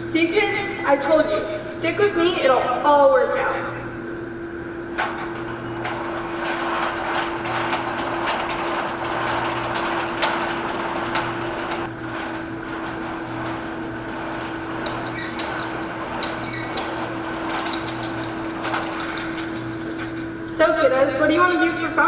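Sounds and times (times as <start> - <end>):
electrical hum: 0.0 - 22.0
irregular knocks and clicks: 4.6 - 20.3.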